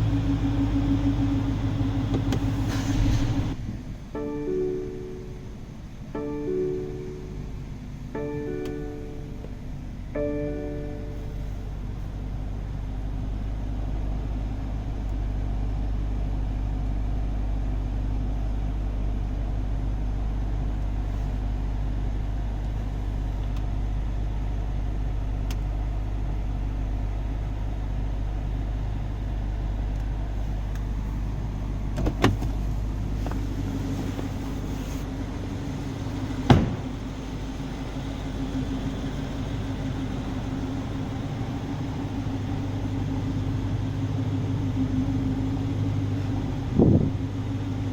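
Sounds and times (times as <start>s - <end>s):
car engine idling: 0.0s - 47.9s
sharp knocks: 36.5s - 36.9s.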